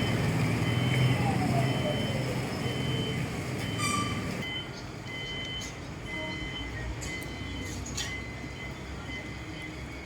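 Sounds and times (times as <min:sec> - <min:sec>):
diesel train idling: 0:00.0 - 0:07.6
electronic warning beeps: 0:00.0 - 0:10.0.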